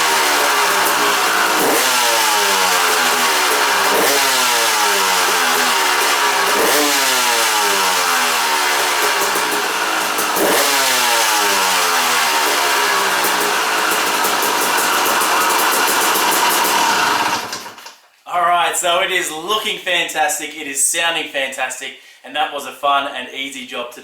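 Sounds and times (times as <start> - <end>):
two-stroke dirt bike engine revving: 0.0 - 17.8.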